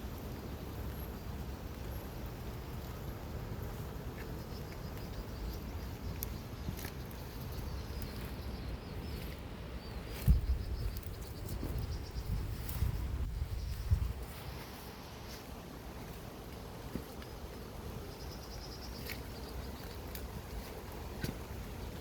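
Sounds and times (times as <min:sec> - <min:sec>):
faint high chirping: 0:04.4 - 0:14.2
wind buffeting microphone: 0:05.4 - 0:14.7.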